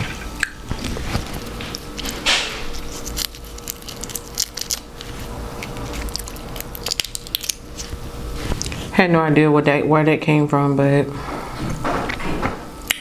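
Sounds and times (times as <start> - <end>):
wet squishing and chewing: 0.0 - 8.9
crab shell cracking: 0.4 - 8.7.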